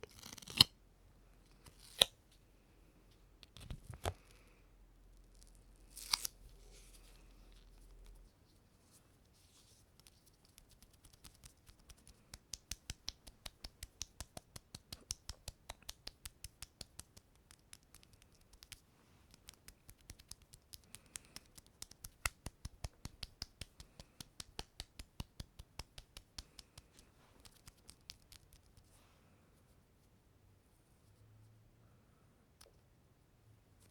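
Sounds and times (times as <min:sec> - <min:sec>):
fingertips clicking off sticky surface: 0:10.0 - 0:28.5.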